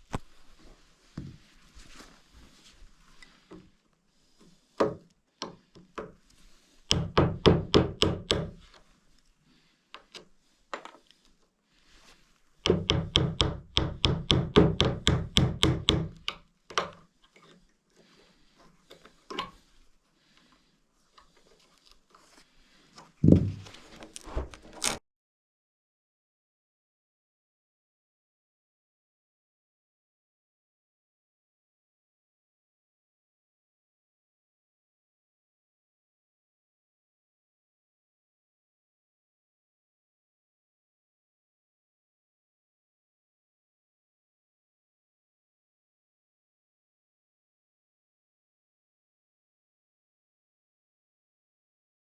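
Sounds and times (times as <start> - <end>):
heavy thud: 23.2 - 23.7.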